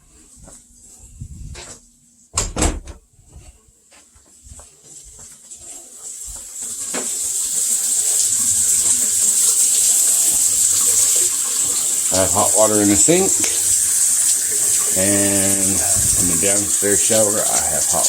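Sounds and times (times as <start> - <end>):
water running from tap: 6.0 - 18.0.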